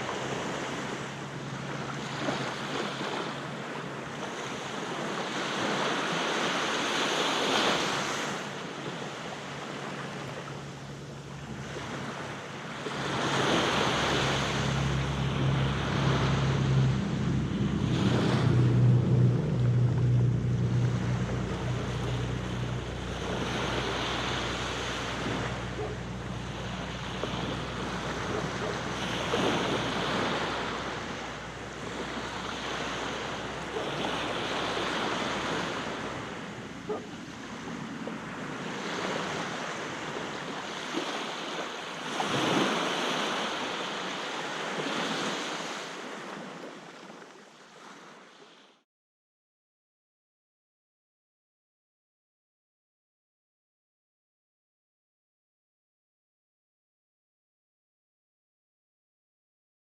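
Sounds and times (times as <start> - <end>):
waves washing onto a beach: 0.0 - 48.8
low steady hum: 8.6 - 38.3.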